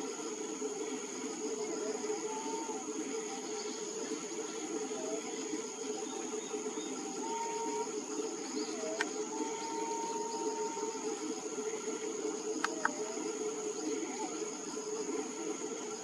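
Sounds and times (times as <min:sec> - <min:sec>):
dense background drone: 0:00.0 - 0:16.0
sharp clicks: 0:12.6 - 0:13.0.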